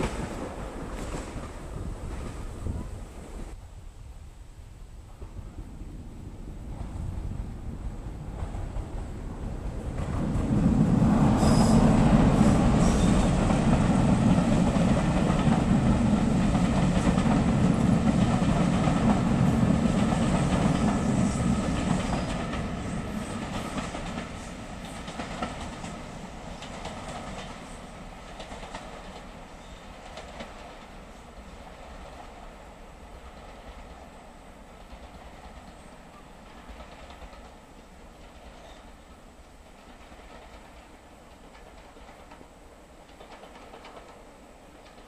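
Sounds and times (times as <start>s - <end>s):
passenger train passing: 0.0s - 45.0s
wheels clicking over rail joints: 34.8s - 45.0s.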